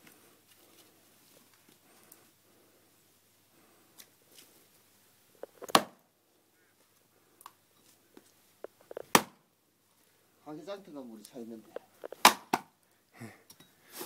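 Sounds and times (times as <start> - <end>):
axe striking log: 5.7 - 6.0, 9.1 - 9.4, 12.2 - 12.7.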